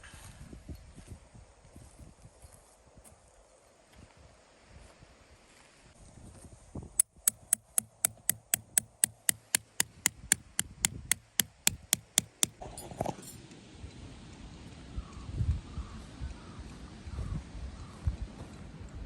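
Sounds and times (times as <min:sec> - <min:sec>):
hammer tapping on metal: 0:07.0 - 0:12.6.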